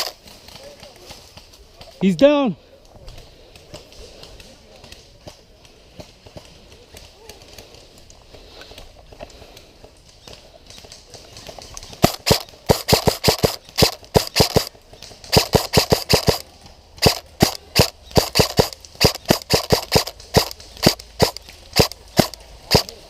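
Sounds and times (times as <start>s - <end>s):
airsoft rifle shots cracking: 11.4s - 23.0s.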